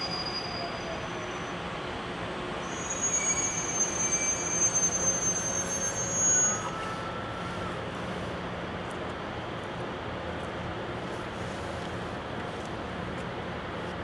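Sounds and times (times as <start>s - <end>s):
high brake squeal: 0.0s - 7.9s
train pulling in: 0.0s - 14.0s.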